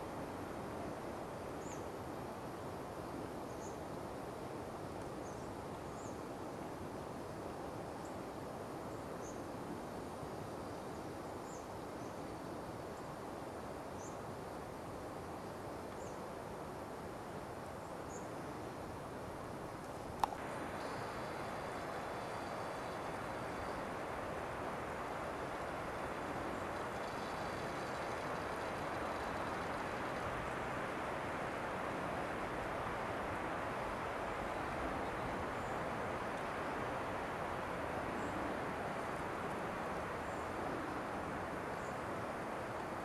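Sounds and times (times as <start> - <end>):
woodland air hiss: 0.0 - 43.0.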